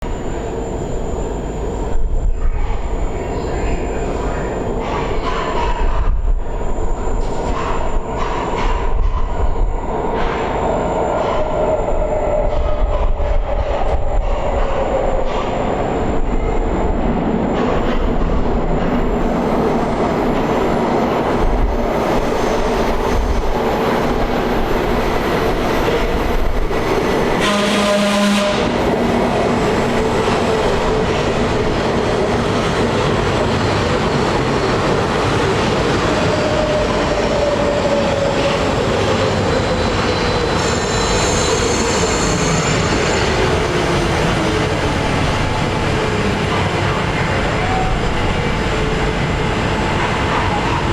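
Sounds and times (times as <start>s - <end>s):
subway train rumble and wheel noise: 0.0s - 50.9s
brief horn-like tone: 27.4s - 28.8s.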